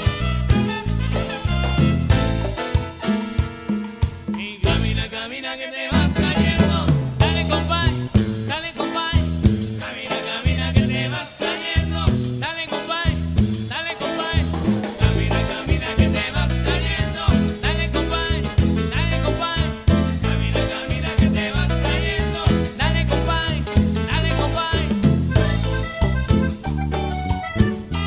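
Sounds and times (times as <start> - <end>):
bass line: 0.0 - 3.1, 4.4 - 5.2, 5.9 - 9.9, 10.5 - 13.8, 14.4 - 28.0
drum kit: 0.0 - 5.3, 5.9 - 28.0
band playing upbeat song: 0.0 - 28.0
person singing: 4.4 - 25.7.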